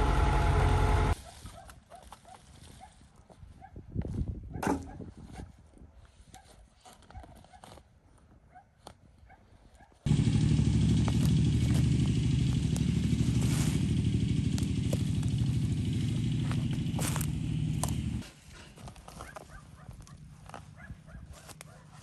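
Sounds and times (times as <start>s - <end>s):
engine running: 0.0s - 1.2s, 10.1s - 18.4s.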